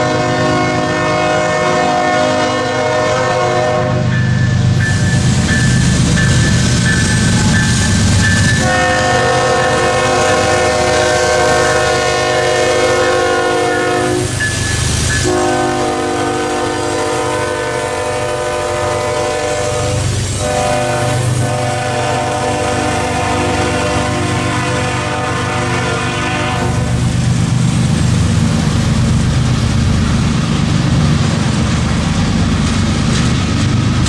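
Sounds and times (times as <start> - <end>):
locomotive air horn blasts: 0.0 - 4.1, 7.4 - 14.4, 15.2 - 27.0
low locomotive rumble: 0.0 - 34.0.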